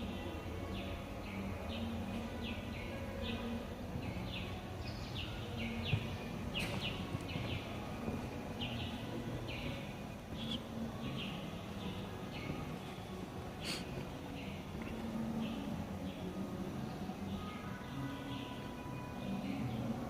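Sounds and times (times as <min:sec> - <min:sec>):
outdoor background noise: 0:00.0 - 0:20.0
bird chirping: 0:00.7 - 0:13.0.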